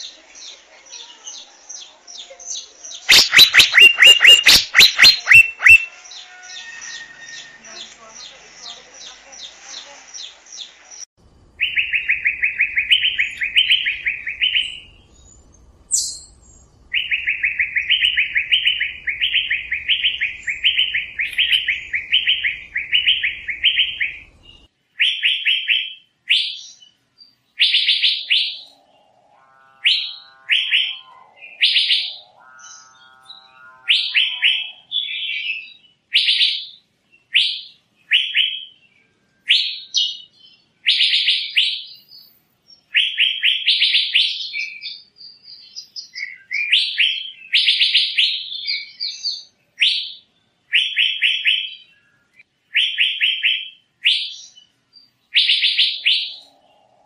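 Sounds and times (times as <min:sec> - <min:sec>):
bird whistled calls: 0:02.9 - 0:07.9, 0:11.6 - 0:14.9, 0:15.9 - 0:24.2, 0:55.3 - 0:56.5.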